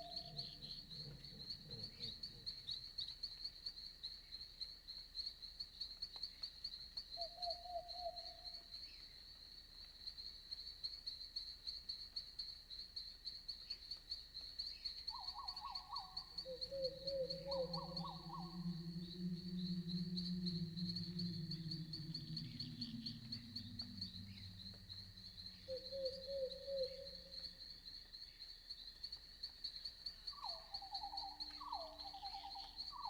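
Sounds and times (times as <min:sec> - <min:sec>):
crickets chirping: 0:00.0 - 0:33.0
lower trilling animal calls: 0:15.4 - 0:27.5.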